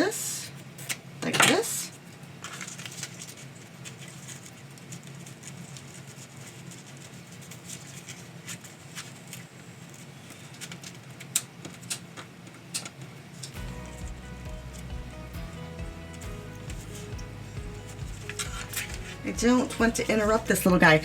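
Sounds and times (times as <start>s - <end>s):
paper and ribbon rustling: 2.1s - 12.0s, 13.3s - 21.0s
low steady hum: 13.4s - 21.0s.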